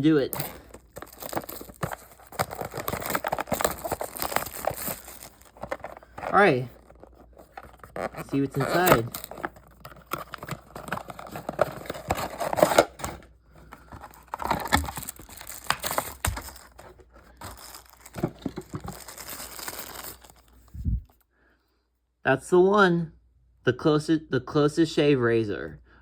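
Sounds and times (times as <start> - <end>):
packaging crinkling and tearing: 0.0 - 20.8.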